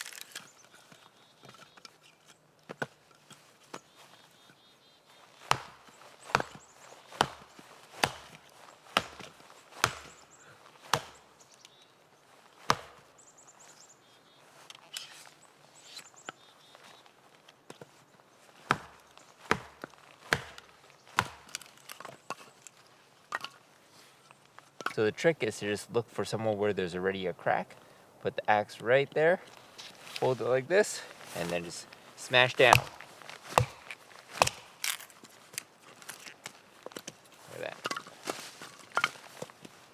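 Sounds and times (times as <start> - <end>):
hatchet chopping wood: 5.4 - 11.3, 12.6 - 13.1, 18.6 - 22.4, 31.2 - 35.2.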